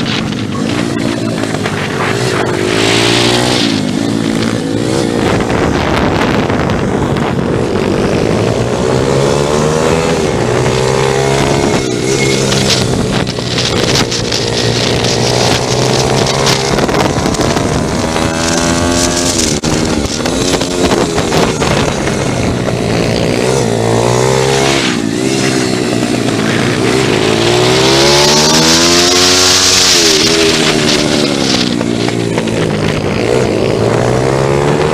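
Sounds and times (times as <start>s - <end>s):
motorbike engine revving: 0.0s - 34.9s.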